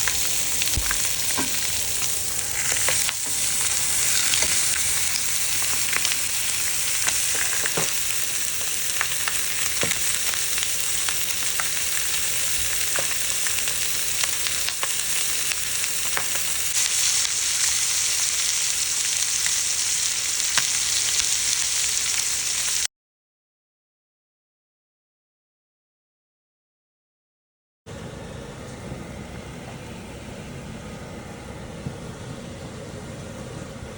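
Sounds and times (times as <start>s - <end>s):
food sizzling in a pan: 0.0s - 22.9s.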